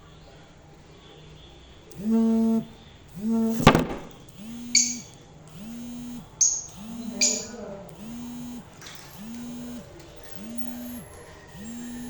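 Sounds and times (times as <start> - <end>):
pulsing low buzzing tone: 1.9 - 12.0
sharp click: 3.6 - 5.2, 6.4 - 7.5
lovebird chirp: 4.4 - 5.2, 6.4 - 7.6.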